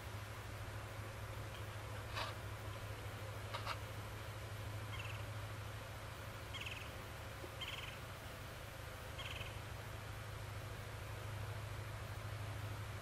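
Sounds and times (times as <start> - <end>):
steady low hum: 0.0 - 13.0
small bird buzzy trilled chirps: 4.8 - 5.4, 6.4 - 7.0, 7.6 - 8.0, 9.1 - 9.6.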